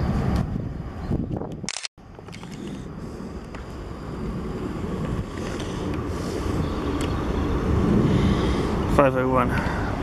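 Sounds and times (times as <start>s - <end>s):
train wheels rumbling on rails: 2.1s - 10.0s.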